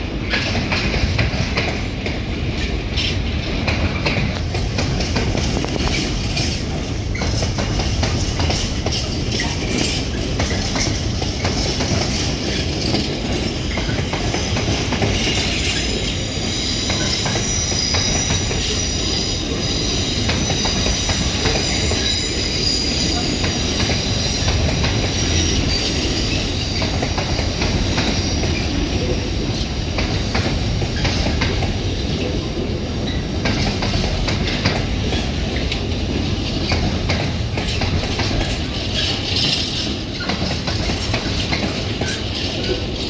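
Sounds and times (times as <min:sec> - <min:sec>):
freight train rumble: 0:00.0 - 0:43.0
wheels clicking over rail joints: 0:00.3 - 0:16.0, 0:33.1 - 0:43.0
high-pitched wheel squeal: 0:15.6 - 0:26.9.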